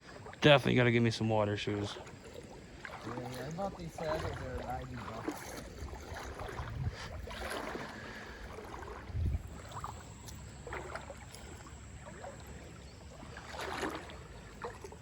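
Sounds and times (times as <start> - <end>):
water sloshing around wading legs: 0.0 - 15.0
low rumble on microphone: 4.0 - 13.4.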